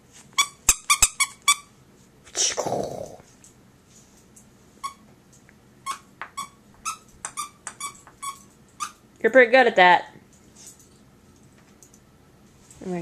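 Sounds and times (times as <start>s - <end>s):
squeaky dog toy squeaking: 0.4s - 1.7s, 4.8s - 5.0s, 5.9s - 9.0s.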